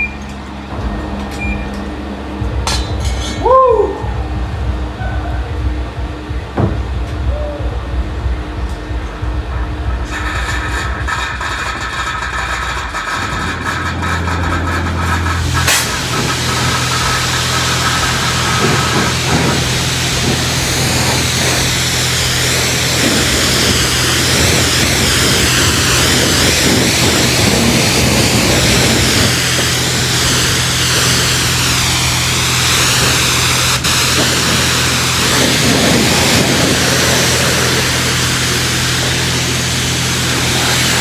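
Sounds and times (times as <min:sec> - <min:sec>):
pump humming: 0:00.0 - 0:41.0
water spray hissing: 0:09.6 - 0:41.0.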